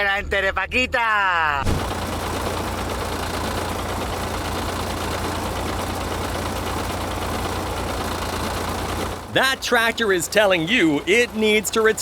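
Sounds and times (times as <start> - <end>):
old tractor engine running: 1.6 - 12.0.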